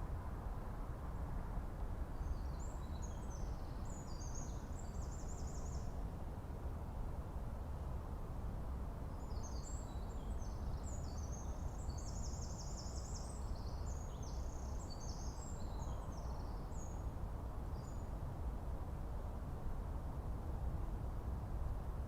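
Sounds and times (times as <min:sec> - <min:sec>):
small bird singing: 0:09.2 - 0:17.0.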